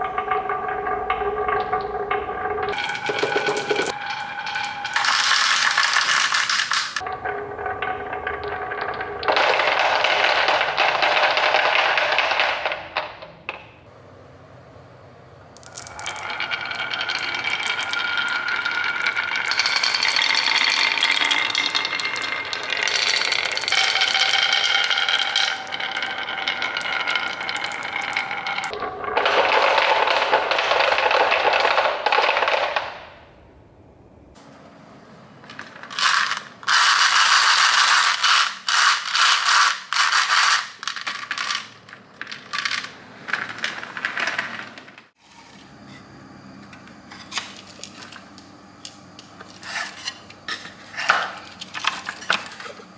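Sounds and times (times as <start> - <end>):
marbles rolling on plastic track: 2.7 - 7.1, 8.4 - 13.1, 15.6 - 33.1, 35.4 - 45.1.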